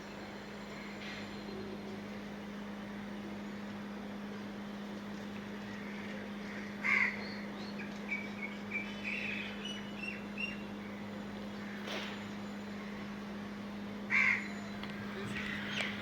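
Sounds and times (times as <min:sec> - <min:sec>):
steady low hum: 0:00.0 - 0:16.0
bird calls and chirps: 0:05.6 - 0:13.1, 0:14.2 - 0:16.0.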